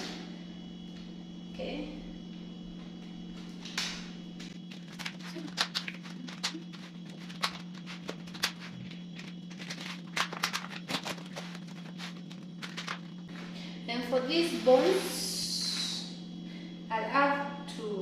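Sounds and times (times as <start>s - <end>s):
steady low hum: 0.0s - 18.0s
plastic containers clicking and crinkling: 4.7s - 13.2s.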